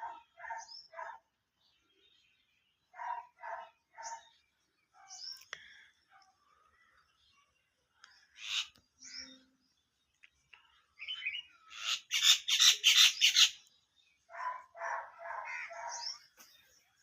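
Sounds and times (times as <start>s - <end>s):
birds calling: 0.0s - 17.0s
rapidly repeated bird calls: 0.0s - 17.0s
harsh bird calls: 8.1s - 9.6s, 10.8s - 16.8s.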